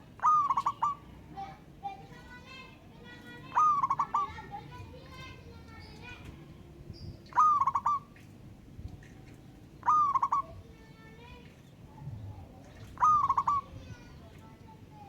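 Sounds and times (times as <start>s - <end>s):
dove cooing: 0.0s - 1.2s, 3.5s - 4.6s, 7.3s - 8.1s, 9.8s - 10.6s, 12.8s - 13.8s
other birds calling: 0.0s - 1.3s, 3.4s - 6.3s, 7.2s - 8.3s, 9.7s - 10.6s, 12.8s - 14.4s.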